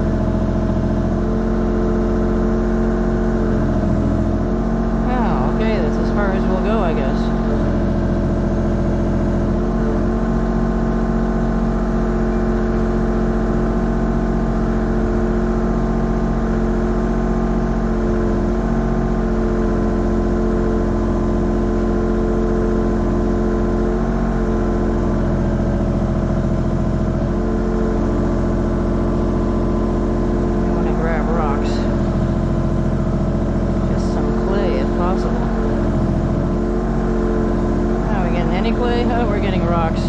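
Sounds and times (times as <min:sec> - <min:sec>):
excavator engine running: 0:00.0 - 0:40.0.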